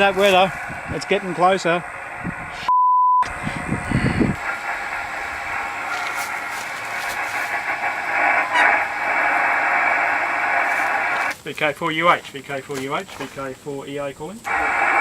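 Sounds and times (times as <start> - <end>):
radio receiver hiss: 0.0 - 15.0
short pure beep: 2.7 - 3.3.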